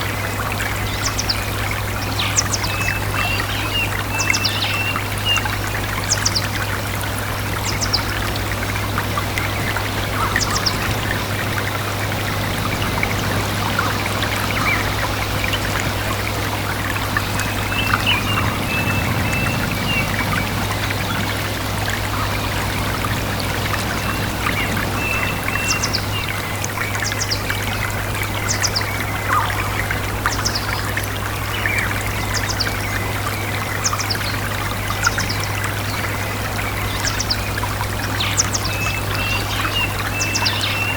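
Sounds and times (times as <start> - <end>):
stream running: 0.0 - 40.9
birds chirping: 0.8 - 40.9.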